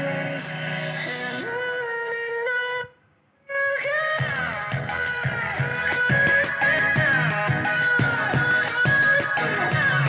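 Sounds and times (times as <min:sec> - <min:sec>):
music through small speaker: 0:00.0 - 0:02.5, 0:03.8 - 0:10.0.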